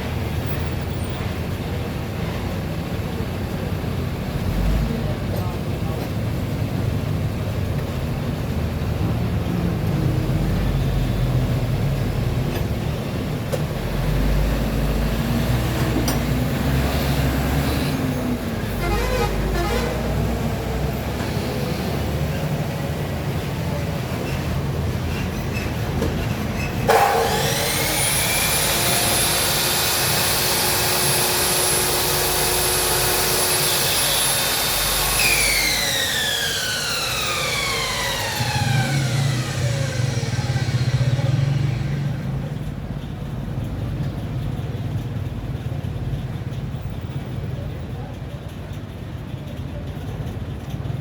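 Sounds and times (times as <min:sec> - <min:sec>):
mitre saw motor whine: 0:16.6 - 0:22.8, 0:26.9 - 0:42.6.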